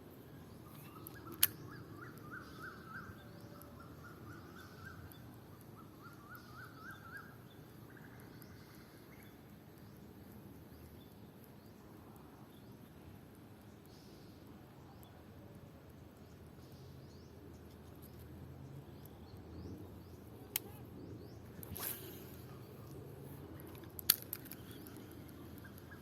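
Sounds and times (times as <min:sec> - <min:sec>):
faint outdoor ambience: 0:00.0 - 0:26.0
bird chirping: 0:00.5 - 0:11.8
sharp click: 0:00.8 - 0:02.1.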